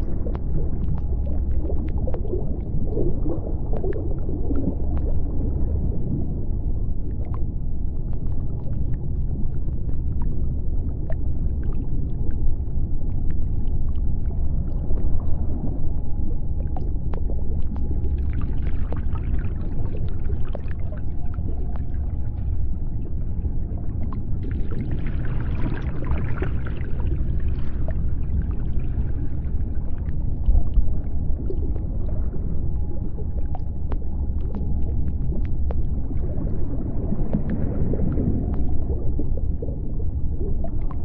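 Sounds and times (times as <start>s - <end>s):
deep underwater rumble: 0.0s - 41.0s
clicks and crackles: 33.0s - 36.4s.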